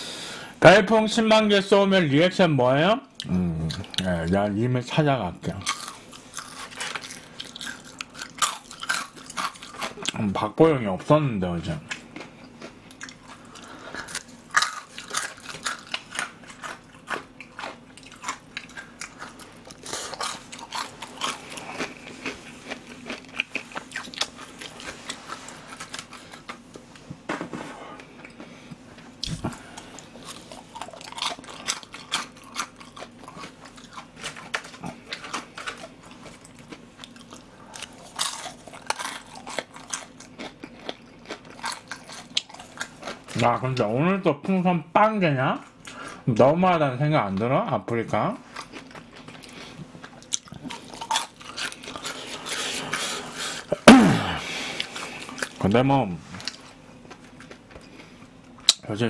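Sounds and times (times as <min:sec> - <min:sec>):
crunchy chewing: 0:05.5 - 0:10.4, 0:11.7 - 0:27.0, 0:27.9 - 0:43.6, 0:48.4 - 0:55.6, 0:56.4 - 0:58.8.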